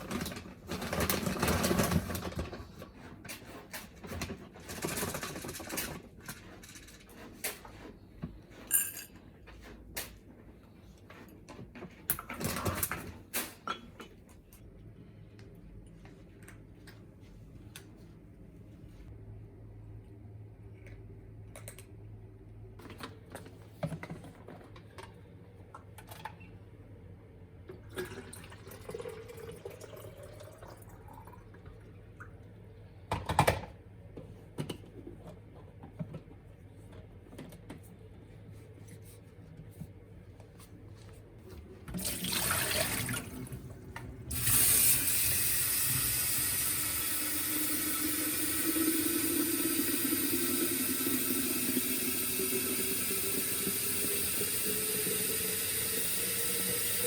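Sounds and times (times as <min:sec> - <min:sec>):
water tap running: 0:42.0 - 0:57.0.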